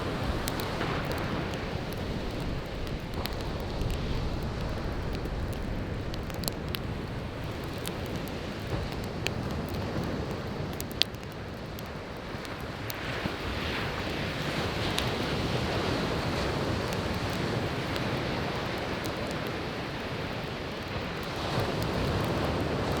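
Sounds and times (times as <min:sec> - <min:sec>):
surf breaking on shore: 0:00.0 - 0:09.0
wood fire crackling and popping: 0:00.0 - 0:23.0.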